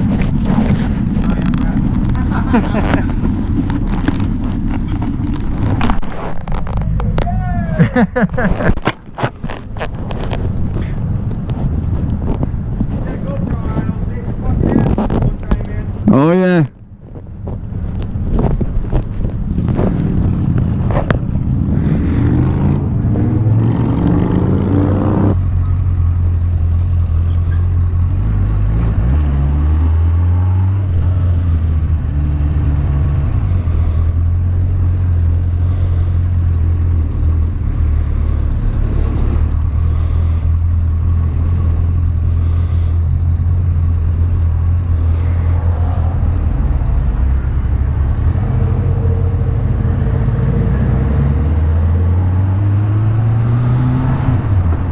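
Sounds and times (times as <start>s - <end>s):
motorcycle engine revving: 19.0s - 54.9s.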